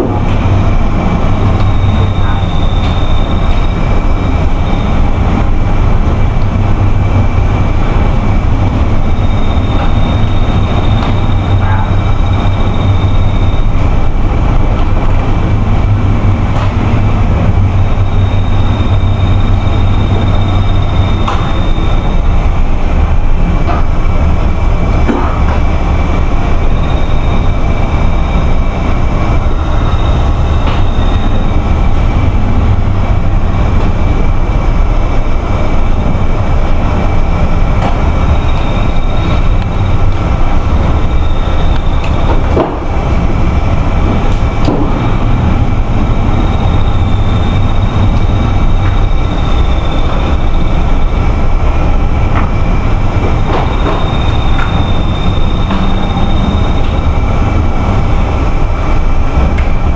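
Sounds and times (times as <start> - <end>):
wind buffeting microphone: 0.0 - 59.9
high thin whining tones: 44.5 - 58.5.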